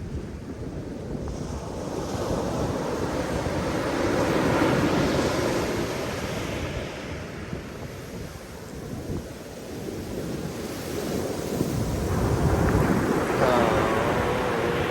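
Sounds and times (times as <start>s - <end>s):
wind rumble on microphone: 0.0s - 14.9s
ocean wave breaking: 11.0s - 14.9s.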